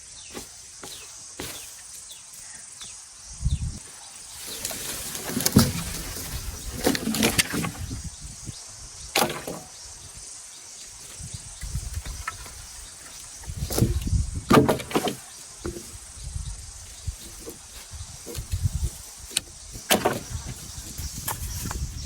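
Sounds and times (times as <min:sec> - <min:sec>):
broom sweeping ground: 0:00.0 - 0:02.8, 0:03.8 - 0:07.9, 0:15.1 - 0:22.0.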